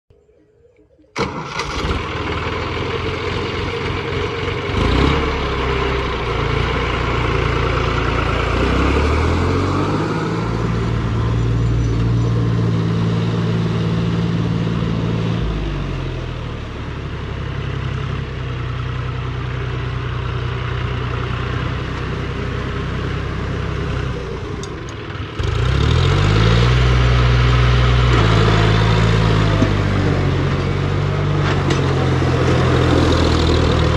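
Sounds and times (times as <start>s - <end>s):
tractor diesel engine revving: 1.1s - 33.9s.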